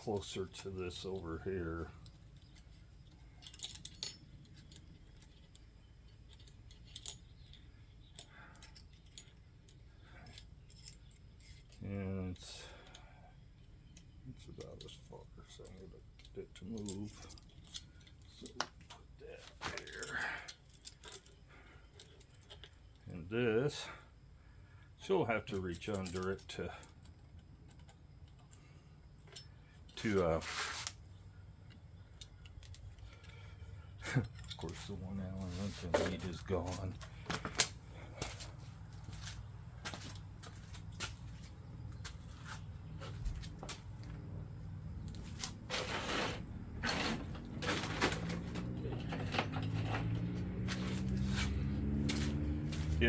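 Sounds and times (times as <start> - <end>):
low steady background hum: 0.0 - 53.0
light clicks and metallic taps: 2.0 - 23.1, 31.6 - 34.9
metal hand tools clinking: 14.6 - 22.7, 32.2 - 41.4, 46.9 - 53.0
hissing rustle: 30.4 - 31.0
person speaking: 34.1 - 37.2.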